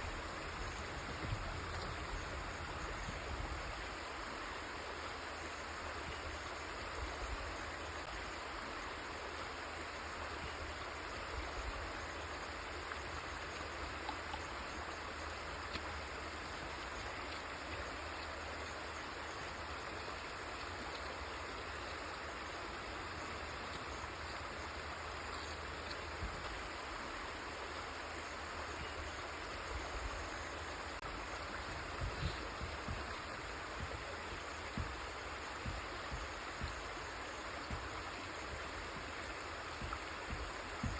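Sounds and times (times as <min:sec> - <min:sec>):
river water flowing: 0:00.0 - 0:40.9
small low thumps: 0:31.0 - 0:40.9.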